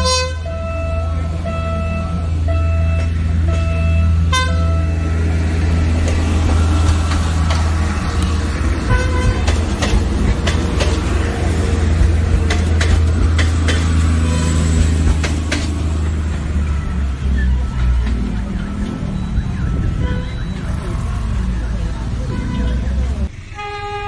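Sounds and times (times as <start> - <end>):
train horn toots: 0.0 - 5.1, 8.8 - 9.6, 14.2 - 14.8, 23.6 - 24.0
diesel engine rumble: 0.0 - 24.0.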